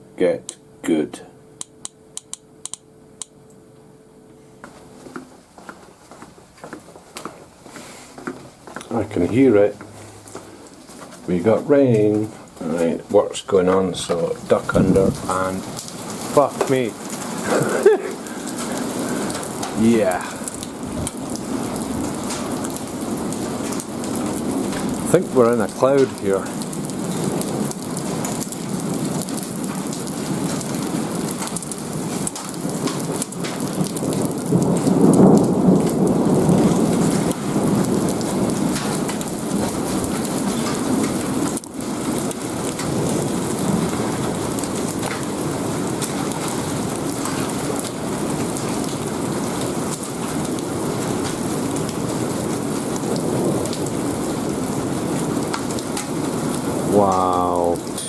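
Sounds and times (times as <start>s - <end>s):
heavy rain pouring: 7.6s - 58.0s
low rumble of thunder: 13.9s - 57.0s.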